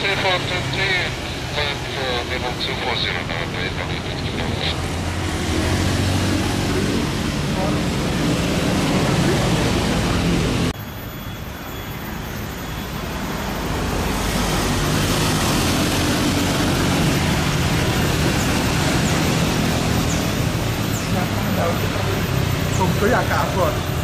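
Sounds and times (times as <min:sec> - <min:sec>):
jet engine and airflow hiss: 0:00.0 - 0:05.8.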